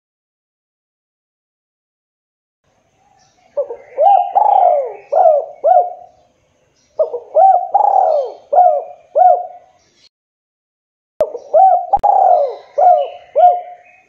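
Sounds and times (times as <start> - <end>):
dove cooing: 3.4 - 6.2, 7.0 - 9.8, 11.2 - 14.0.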